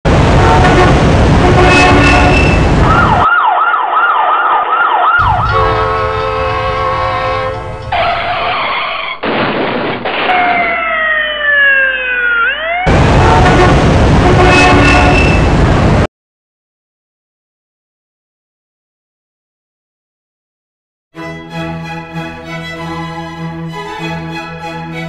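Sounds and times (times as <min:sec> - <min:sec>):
held horn tone: 0:00.3 - 0:02.7, 0:05.2 - 0:08.3, 0:13.1 - 0:15.5
emergency siren wailing: 0:00.4 - 0:09.2, 0:10.3 - 0:14.8
traffic noise: 0:04.6 - 0:08.6.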